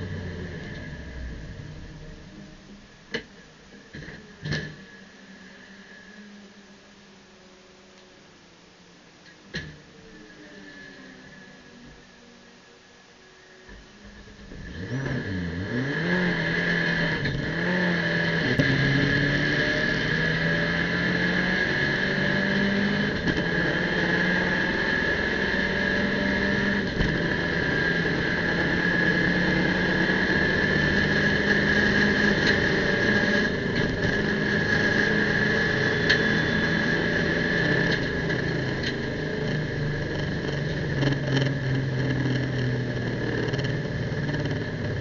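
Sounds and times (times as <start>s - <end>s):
constant high whine: 0.0s - 45.0s
race car engine revving: 14.2s - 45.0s.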